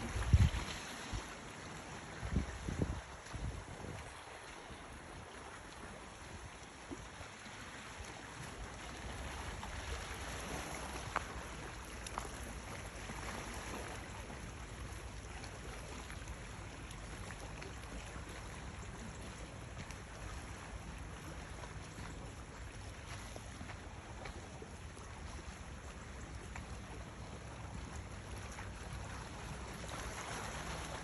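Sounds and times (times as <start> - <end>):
wind buffeting microphone: 0.0 - 1.4, 2.2 - 4.3
sea noise: 0.0 - 31.0.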